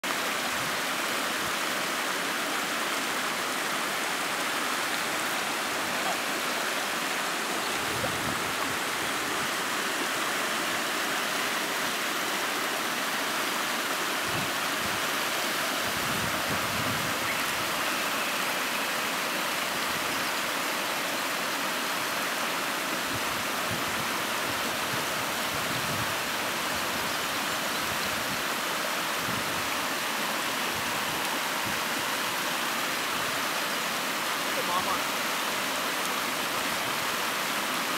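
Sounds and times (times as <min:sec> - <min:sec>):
stream rushing over rocks: 0:00.0 - 0:37.9.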